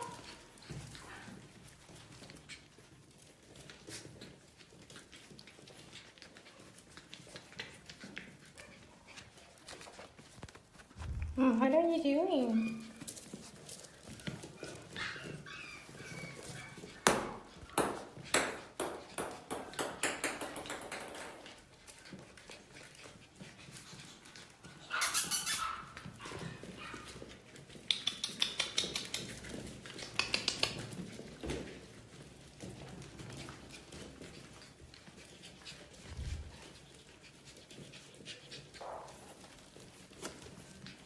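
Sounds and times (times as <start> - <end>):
puppies' claws clicking and tapping: 0.0 - 41.0.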